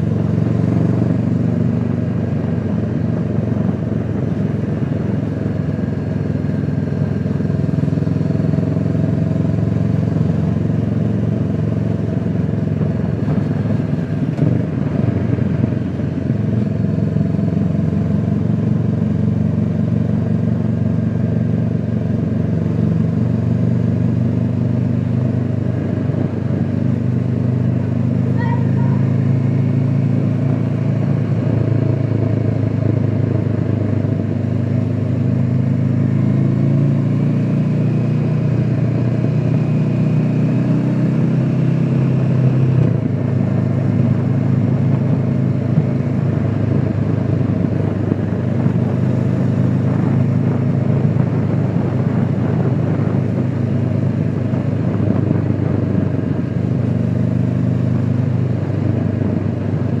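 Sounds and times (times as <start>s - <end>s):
motorcycle engine running: 0.0s - 60.0s
wind and road rush: 0.0s - 60.0s.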